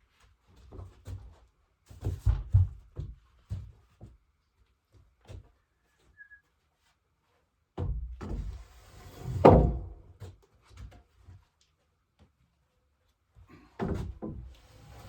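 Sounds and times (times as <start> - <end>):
timber scraping: 8.4 - 10.1, 14.6 - 15.0.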